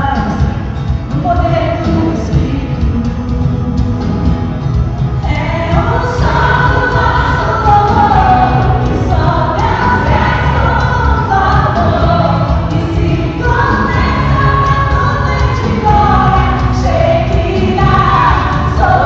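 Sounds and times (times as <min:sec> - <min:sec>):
group of voices singing gospel: 0:05.2 - 0:19.0.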